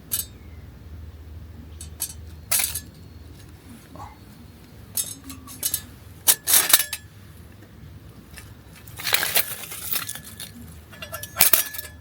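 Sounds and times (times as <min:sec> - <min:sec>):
metal cookware clinking: 0:05.0 - 0:07.0, 0:09.0 - 0:12.0.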